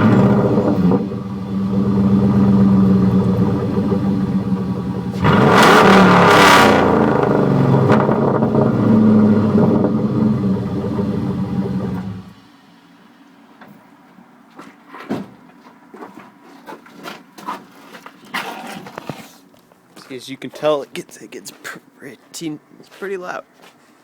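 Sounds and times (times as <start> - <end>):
loud vee eight engine revving: 0.0 - 12.4.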